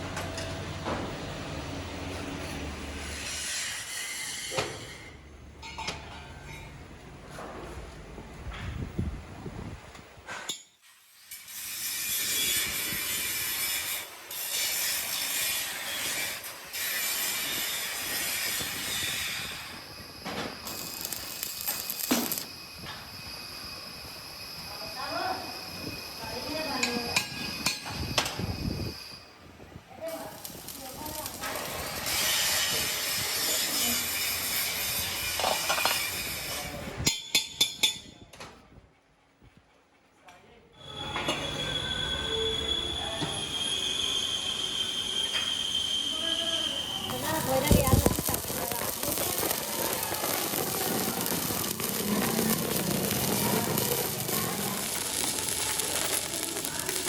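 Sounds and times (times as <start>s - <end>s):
metalworking machine hissing: 30.2s - 36.9s, 40.8s - 57.0s.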